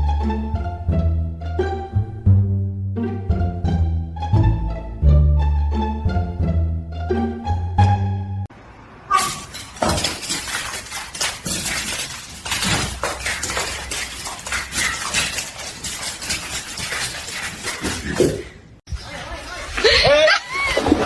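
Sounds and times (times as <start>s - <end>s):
plucked-string music: 0.0s - 8.5s
hard objects clattering: 9.2s - 18.6s.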